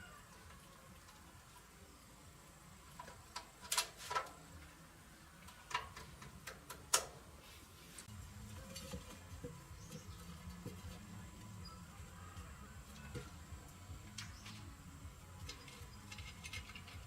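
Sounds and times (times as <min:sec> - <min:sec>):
tools clicking and knocking: 0:05.5 - 0:07.2.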